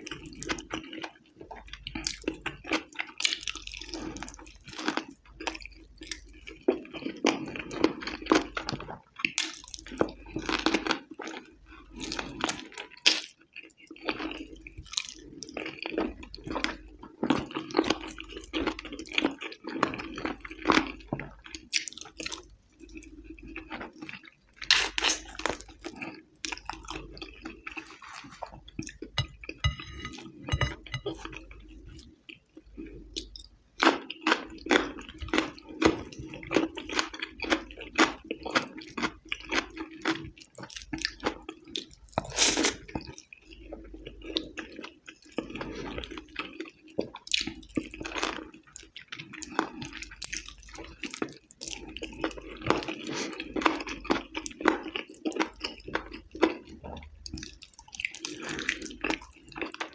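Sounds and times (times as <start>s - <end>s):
wet chewing and lip smacks: 46.4s - 59.9s.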